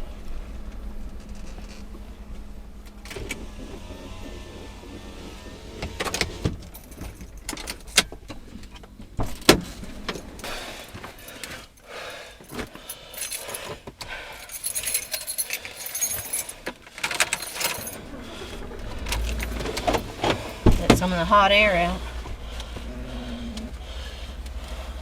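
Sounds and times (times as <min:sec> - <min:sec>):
keys jangling: 0:12.4 - 0:13.8, 0:14.4 - 0:18.0.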